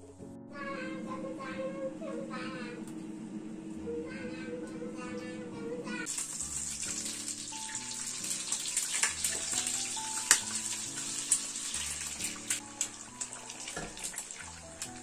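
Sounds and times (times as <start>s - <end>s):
soft background music: 0.0s - 15.0s
water running from a tap: 6.1s - 15.0s.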